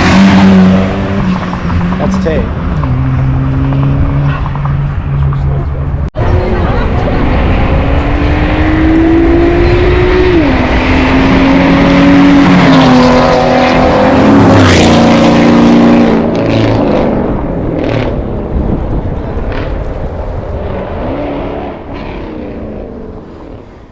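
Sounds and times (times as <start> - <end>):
car accelerating through gears: 6.2 - 18.2.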